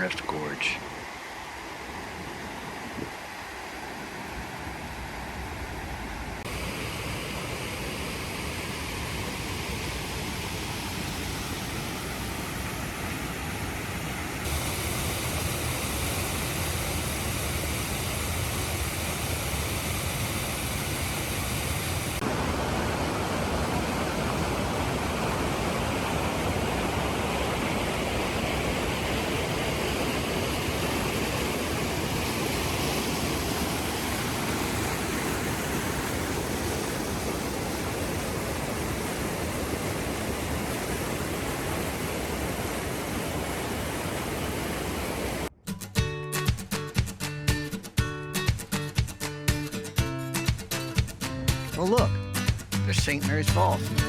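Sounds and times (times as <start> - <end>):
water rushing through rock gorge: 14.4 - 45.5.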